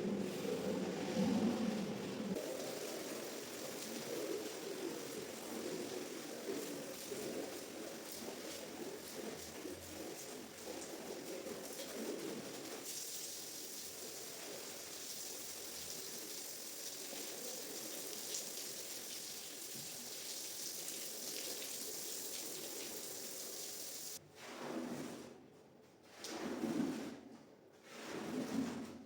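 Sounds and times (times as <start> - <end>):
water splashing onto rug: 2.3 - 25.2.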